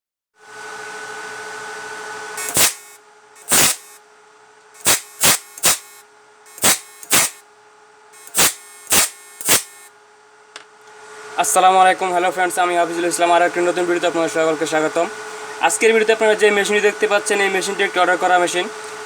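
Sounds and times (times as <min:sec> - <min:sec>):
inverter machine humming: 0:02.4 - 0:04.0, 0:04.8 - 0:07.4, 0:08.2 - 0:09.9
loud sparking cracks: 0:02.4 - 0:04.0, 0:04.8 - 0:07.4, 0:08.2 - 0:09.9.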